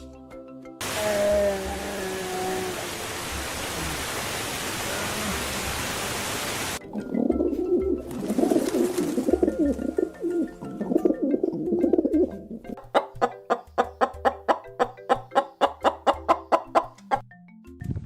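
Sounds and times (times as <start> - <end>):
birds warbling: 7.2 - 17.2.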